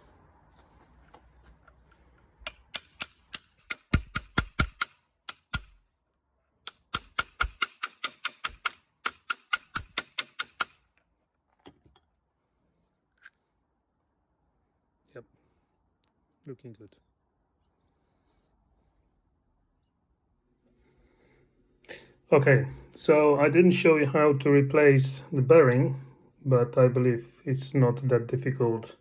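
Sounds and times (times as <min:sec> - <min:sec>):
metal-on-metal tapping: 0:02.4 - 0:05.8, 0:06.6 - 0:10.8.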